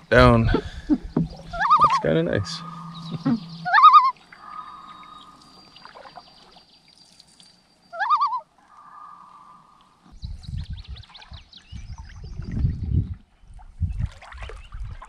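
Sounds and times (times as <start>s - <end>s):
canoe paddling splashes: 0.0s - 7.3s, 14.1s - 15.0s
bird wailing call: 0.6s - 6.2s, 7.9s - 9.8s.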